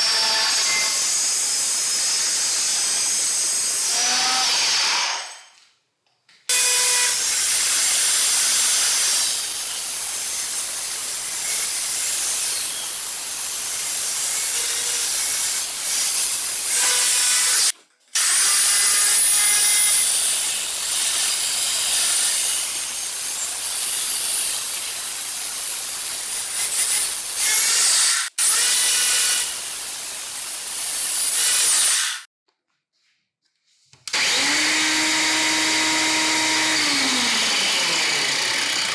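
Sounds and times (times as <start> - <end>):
angle grinder cutting: 6.5 - 32.3, 34.1 - 38.9.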